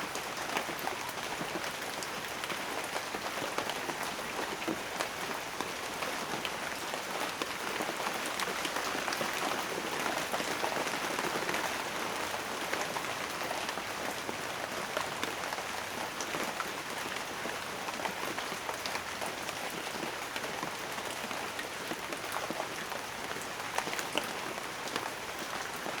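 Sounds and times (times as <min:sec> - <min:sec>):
rain on a hard surface: 0:00.0 - 0:26.0.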